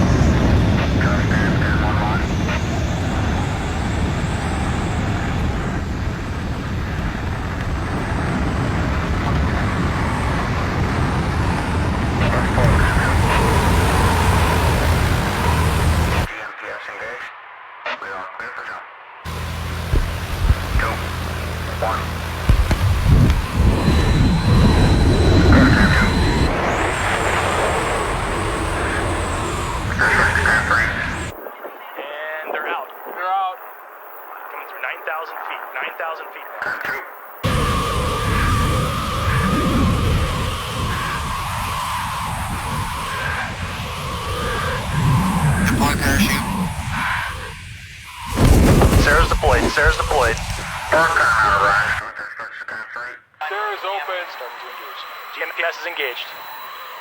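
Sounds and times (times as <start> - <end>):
airplane engine rumble: 0.0 - 16.3, 19.3 - 31.3
faint high whine: 0.0 - 57.0
loud rushing wind: 22.4 - 31.4, 37.4 - 51.8.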